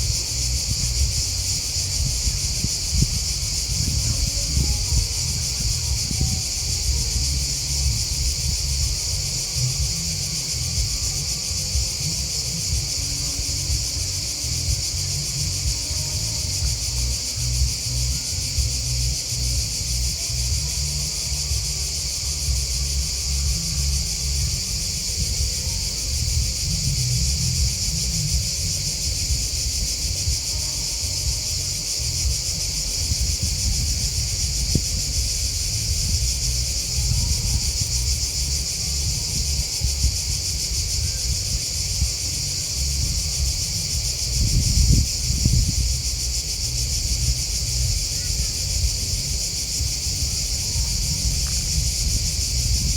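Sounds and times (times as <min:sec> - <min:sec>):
insects chirping: 0:00.0 - 0:52.9.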